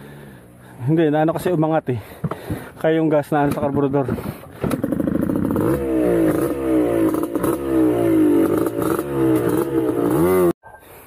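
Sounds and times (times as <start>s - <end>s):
motorcycle engine revving: 4.6s - 10.6s.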